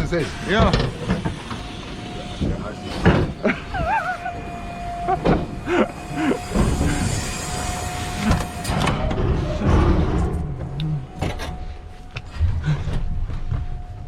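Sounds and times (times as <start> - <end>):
garbage truck rumbling: 0.0 - 14.0
clunks and knocks: 2.9 - 3.5, 5.2 - 5.6.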